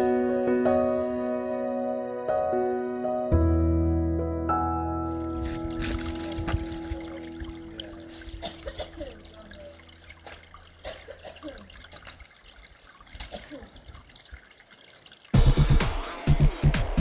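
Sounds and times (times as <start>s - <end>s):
background music: 0.0s - 11.3s, 15.4s - 17.0s
water trickling and dripping: 5.0s - 16.0s.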